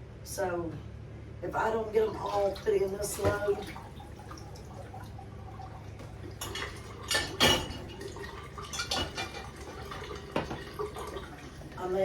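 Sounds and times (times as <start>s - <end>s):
water trickling: 1.8s - 12.0s
dishes clattering into rack: 6.4s - 10.8s.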